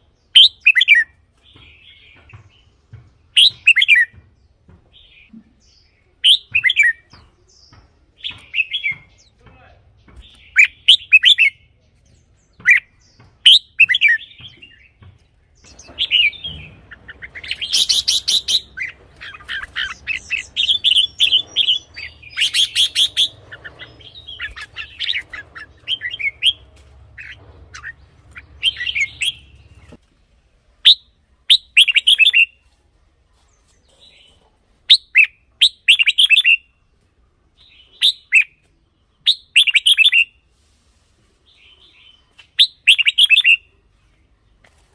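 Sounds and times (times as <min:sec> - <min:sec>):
bulbul whistled song: 0:00.3 - 0:01.1, 0:03.4 - 0:04.1, 0:06.2 - 0:07.1, 0:17.3 - 0:26.6, 0:30.8 - 0:32.6, 0:34.9 - 0:36.7, 0:37.7 - 0:38.6, 0:39.2 - 0:40.4, 0:42.4 - 0:43.7.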